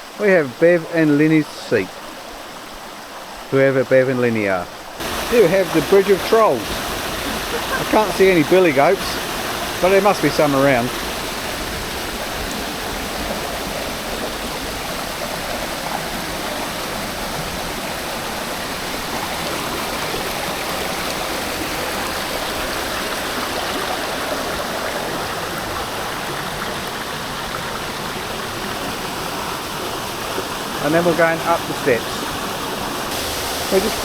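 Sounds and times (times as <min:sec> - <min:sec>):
water rushing over rocks: 0:00.0 - 0:34.0.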